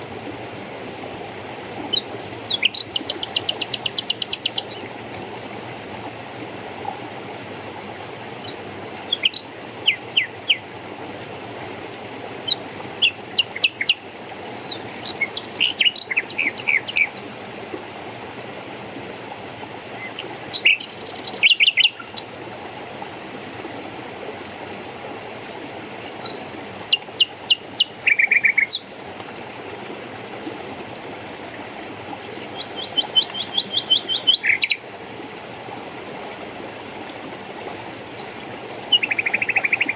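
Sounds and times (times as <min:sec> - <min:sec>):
flowing water rushing: 0:00.0 - 0:39.9
small birds chirping: 0:14.6 - 0:17.3, 0:26.2 - 0:28.9, 0:32.4 - 0:34.8.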